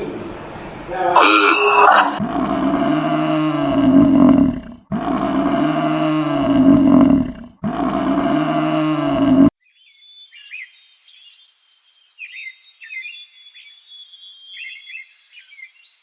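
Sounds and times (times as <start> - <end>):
large animal's deep call: 1.2 - 9.5.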